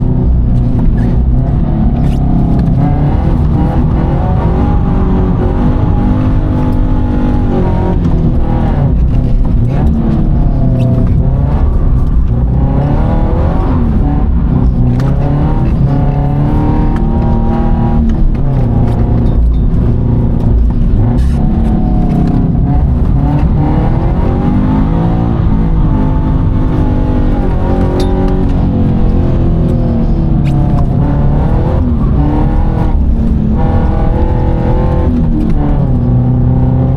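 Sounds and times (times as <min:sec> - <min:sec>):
car engine revving: 0:00.0 - 0:36.9.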